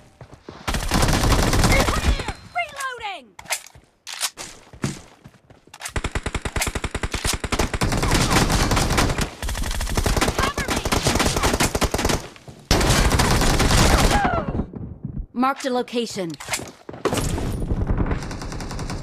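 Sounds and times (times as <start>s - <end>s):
video game automatic gunfire: 0.7s - 2.2s, 6.0s - 14.2s, 17.7s - 19.0s.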